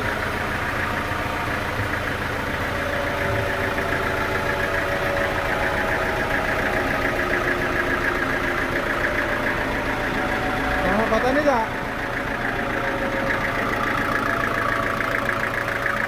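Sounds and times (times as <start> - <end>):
sawmill engine buzzing drone: 0.0 - 16.0.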